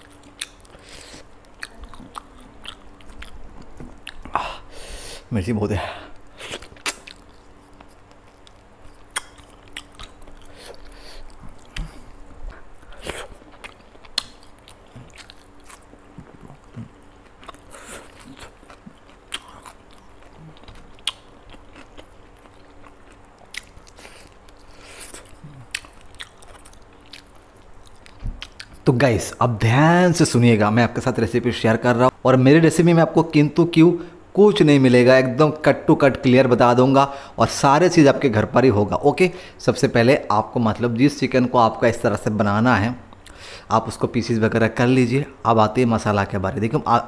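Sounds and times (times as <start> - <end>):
faint steady hum: 0.0 - 47.0
crunchy biting clicks: 6.6 - 12.0.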